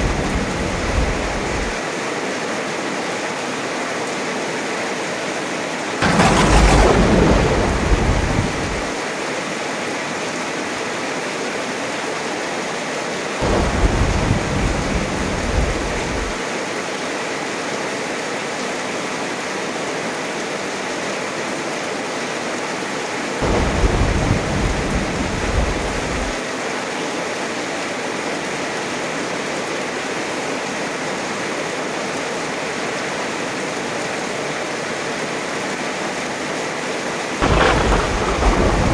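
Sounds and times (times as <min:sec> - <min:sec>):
thunder rolling: 0:00.0 - 0:01.8, 0:06.0 - 0:09.0, 0:13.4 - 0:16.4, 0:23.4 - 0:26.4, 0:37.4 - 0:38.9
heavy rain falling: 0:00.0 - 0:02.0, 0:05.6 - 0:09.6, 0:13.2 - 0:16.8, 0:23.2 - 0:26.9, 0:34.9 - 0:38.9.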